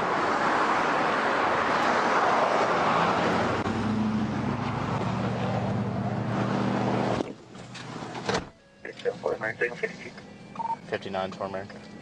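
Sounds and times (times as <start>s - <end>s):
vehicle engine low hum: 3.3s - 8.3s.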